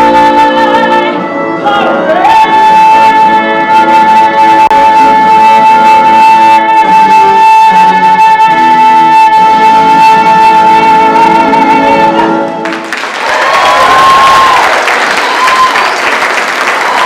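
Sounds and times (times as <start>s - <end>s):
applause: 12.6s - 17.0s.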